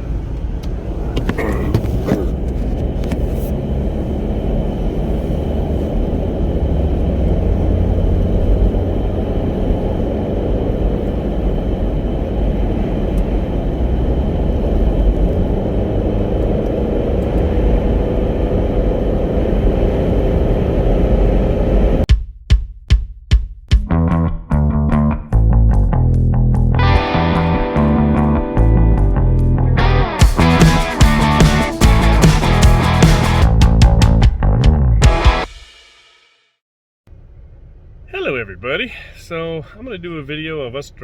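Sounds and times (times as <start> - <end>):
car road noise rumble: 0.0 - 22.1, 37.1 - 41.0.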